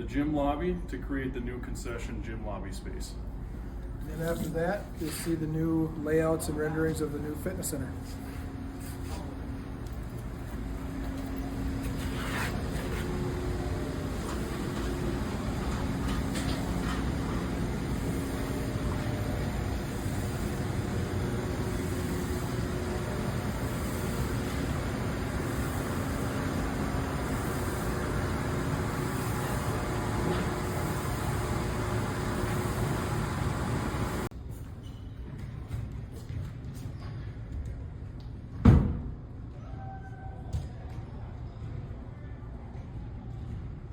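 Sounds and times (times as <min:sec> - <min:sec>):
engine running: 0:09.2 - 0:34.3.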